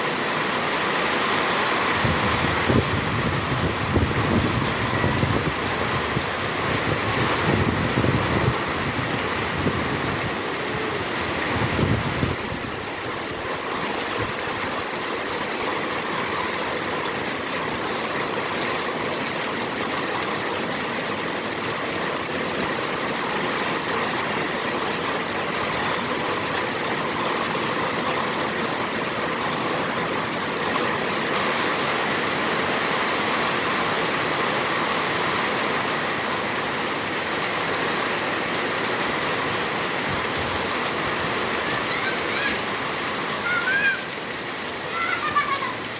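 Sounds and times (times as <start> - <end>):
heavy rain falling: 0.0 - 45.9.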